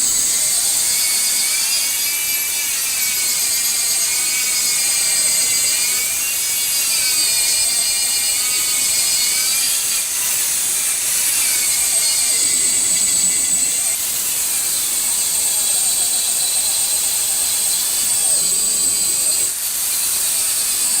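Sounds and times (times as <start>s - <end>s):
power tool grinding: 0.0s - 21.0s.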